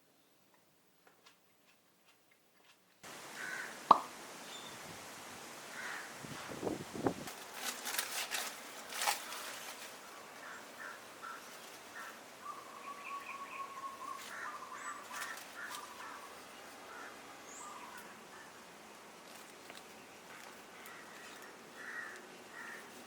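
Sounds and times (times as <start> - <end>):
small birds chirping: 3.0 - 5.0, 7.8 - 23.0
sharp clicks or rustles: 7.2 - 10.0.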